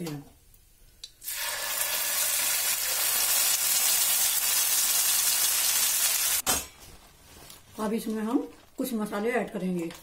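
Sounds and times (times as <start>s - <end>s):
paste sizzling in hot oil: 1.2s - 6.4s.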